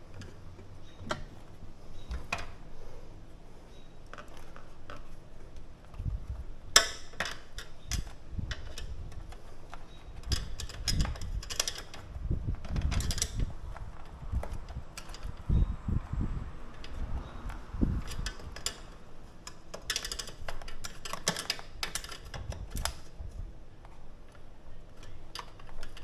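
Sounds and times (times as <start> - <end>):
clicks and knocks of metal and plastic: 4.1 - 15.5, 16.8 - 23.1.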